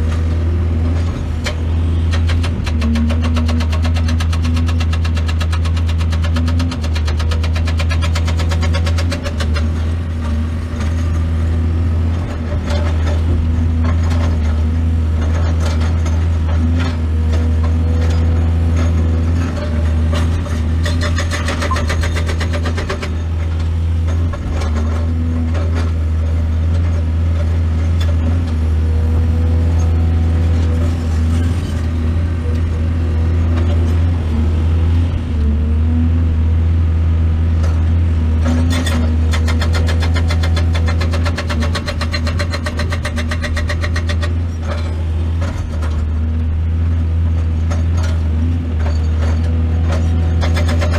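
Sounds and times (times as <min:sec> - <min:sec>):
excavator diesel engine running: 0:00.0 - 0:50.9
machine clatter and knocks: 0:00.9 - 0:10.0, 0:12.1 - 0:28.5, 0:37.6 - 0:46.3, 0:47.3 - 0:50.9.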